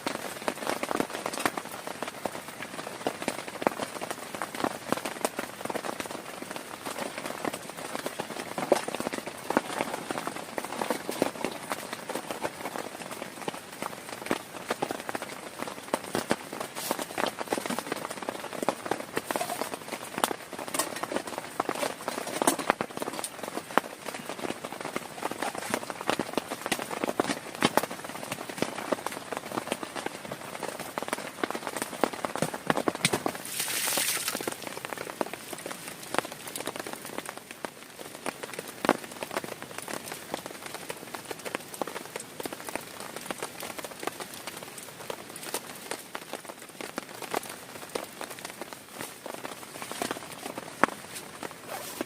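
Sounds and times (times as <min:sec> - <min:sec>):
heavy rain on plastic tarp: 0:00.0 - 0:52.0
raindrop taps: 0:31.0 - 0:40.5.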